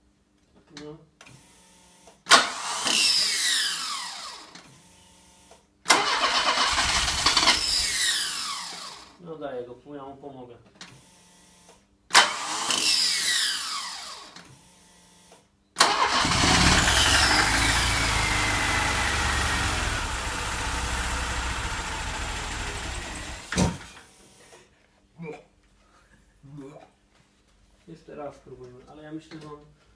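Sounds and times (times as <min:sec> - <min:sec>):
car engine starting and running: 0:05.9 - 0:08.3, 0:15.8 - 0:23.8.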